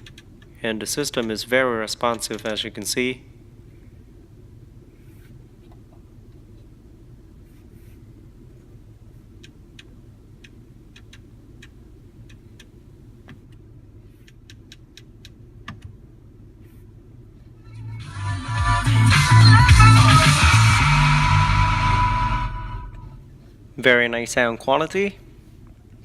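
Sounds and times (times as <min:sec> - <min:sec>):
rotary controller knob clicks: 0:02.0 - 0:02.6.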